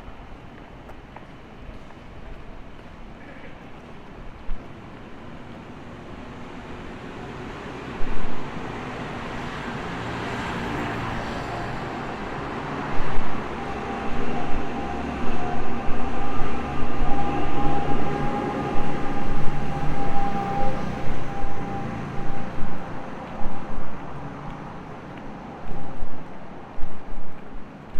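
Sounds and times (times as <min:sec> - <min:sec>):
train rumble: 0:00.0 - 0:27.9
steady whine: 0:11.4 - 0:27.6.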